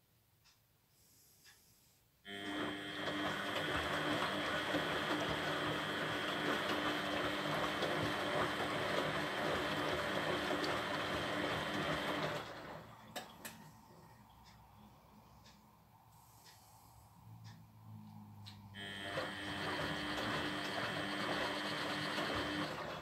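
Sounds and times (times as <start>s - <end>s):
washing machine running: 2.3s - 13.6s, 18.8s - 23.0s.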